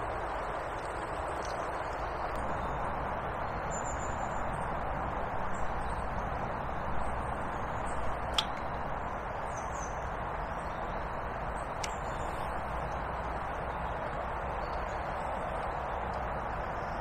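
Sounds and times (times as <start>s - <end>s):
rushing background noise: 0.0s - 17.0s.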